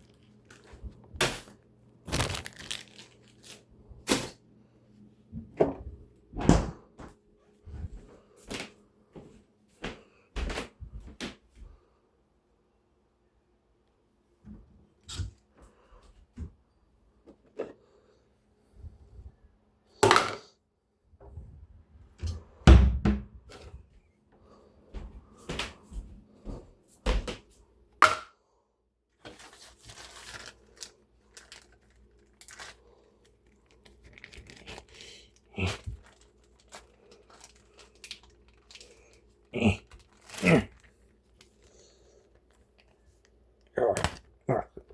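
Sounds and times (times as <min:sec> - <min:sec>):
faint steady hum: 0:00.0 - 0:44.9
rustling: 0:02.1 - 0:03.7, 0:29.2 - 0:43.4.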